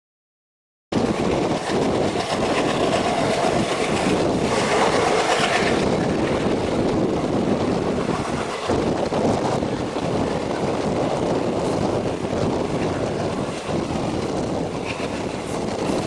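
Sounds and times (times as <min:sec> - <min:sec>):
train wheels on track: 0:00.9 - 0:16.0.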